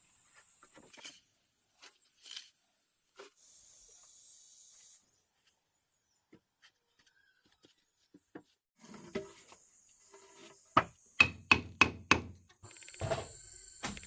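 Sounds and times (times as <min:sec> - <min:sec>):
hammer striking wood: 0:10.8 - 0:12.4.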